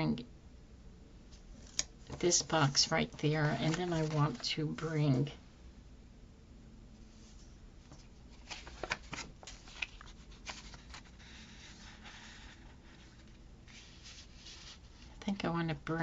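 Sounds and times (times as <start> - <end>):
paper rustling: 1.6 - 4.9, 7.3 - 15.2.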